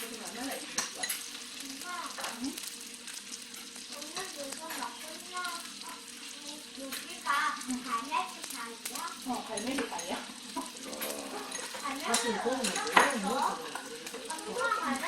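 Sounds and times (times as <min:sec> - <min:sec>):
cutlery and dishes clinking: 0:00.0 - 0:01.4, 0:09.5 - 0:14.4
background chatter: 0:00.0 - 0:15.0.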